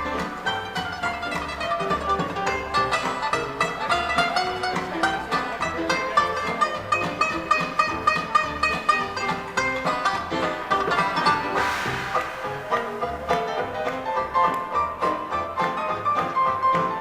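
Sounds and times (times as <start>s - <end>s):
dance orchestra playing: 11.3s - 15.0s.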